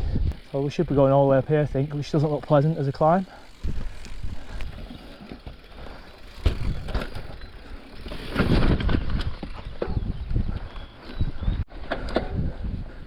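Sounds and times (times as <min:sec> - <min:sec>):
bike tyres rumbling on rough ground: 0:00.0 - 0:13.0
bike frame knocks and rattles: 0:06.3 - 0:10.4.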